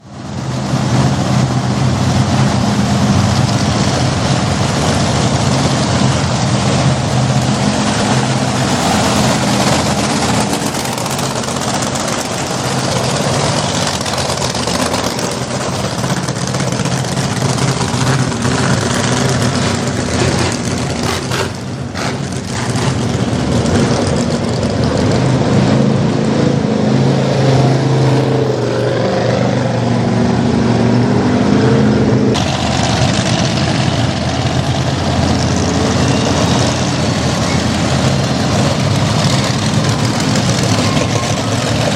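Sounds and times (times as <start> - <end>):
mini monster truck engine: 3.1 - 25.2, 32.4 - 41.9.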